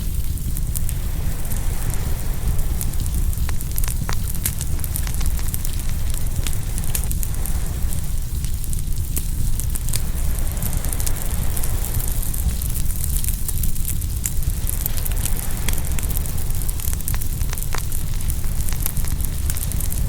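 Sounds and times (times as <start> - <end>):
bonfire crackling and popping: 0.0 - 20.0
low rumble of surf: 0.0 - 20.0.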